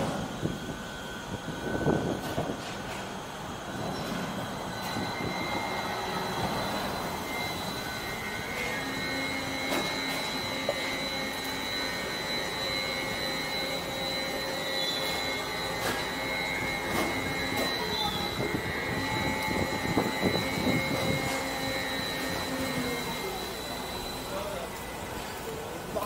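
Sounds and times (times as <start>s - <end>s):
steady high whine: 0.0s - 26.0s.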